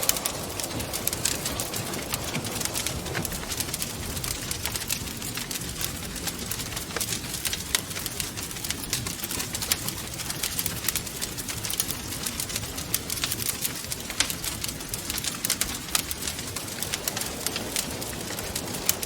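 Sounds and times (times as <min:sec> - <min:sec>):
wind rushing: 0:00.0 - 0:05.3
wood fire crackling and popping: 0:00.0 - 0:19.0.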